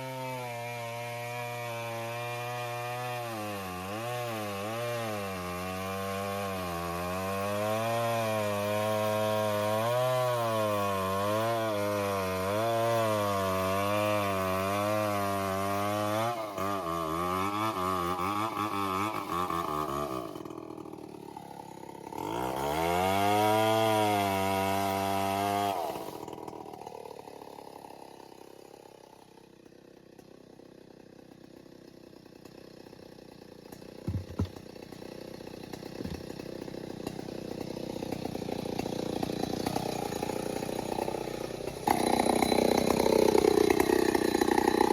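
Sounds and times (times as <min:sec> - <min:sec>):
short knocks: 0:34.0 - 0:34.6.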